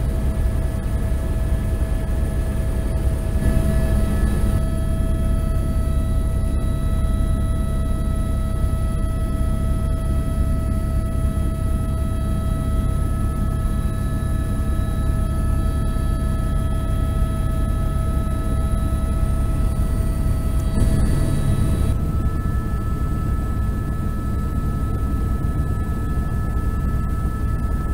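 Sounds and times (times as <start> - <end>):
helicopter drone: 0.0 - 27.9
high whining tones: 3.4 - 7.2.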